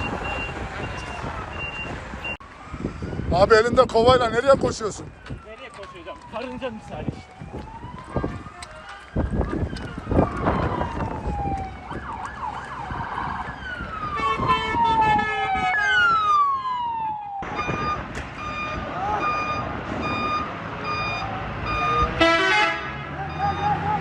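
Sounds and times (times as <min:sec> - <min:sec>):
reversing alarm beeping: 0:00.0 - 0:02.4, 0:17.4 - 0:22.2, 0:23.2 - 0:23.8
sirens winding down: 0:00.0 - 0:24.0.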